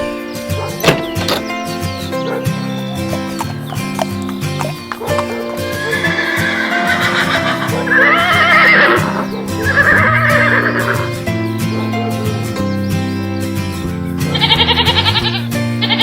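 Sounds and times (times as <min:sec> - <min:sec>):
background music: 0:00.0 - 0:16.0
horse whinnying: 0:02.1 - 0:11.2, 0:14.3 - 0:16.0.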